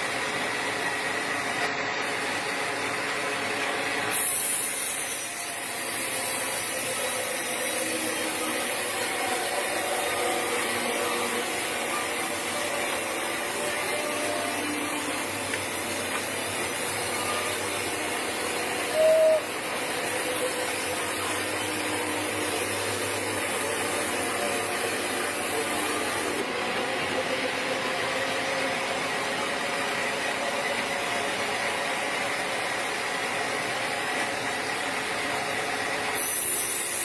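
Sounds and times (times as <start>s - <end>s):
sawmill machinery running: 0.0s - 37.0s
short loud tone: 18.8s - 19.6s.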